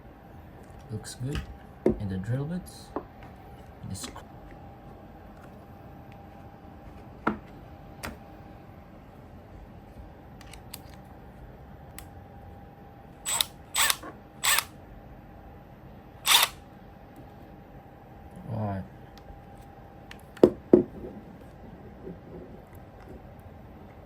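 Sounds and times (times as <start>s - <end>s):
faint steady hum: 0.0s - 24.0s
drill bits clicking and rattling: 13.3s - 14.7s, 16.3s - 16.6s.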